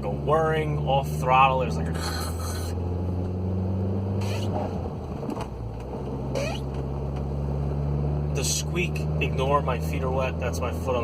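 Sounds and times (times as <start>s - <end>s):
car engine running: 0.0s - 11.0s
transmission whirring: 1.8s - 8.3s
wet shoes squeaking on pedals: 6.4s - 6.7s.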